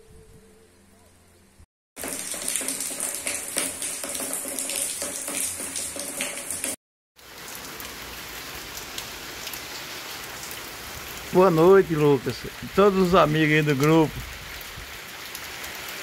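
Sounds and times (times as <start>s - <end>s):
raindrops pattering: 2.0s - 16.0s.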